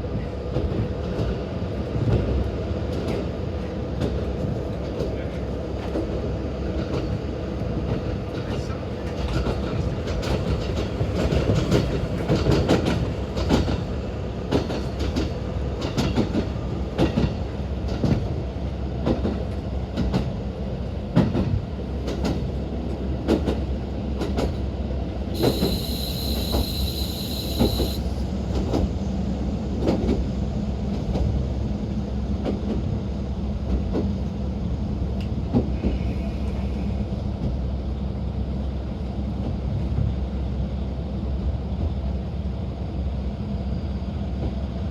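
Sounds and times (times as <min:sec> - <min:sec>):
high steady tone: 0:25.4 - 0:28.2.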